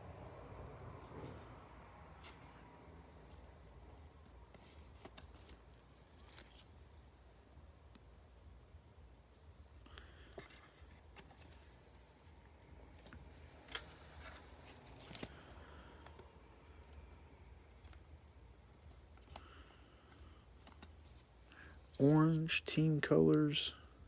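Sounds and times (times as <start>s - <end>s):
cards and foil packs rustling: 4.2s - 7.0s, 10.2s - 23.6s.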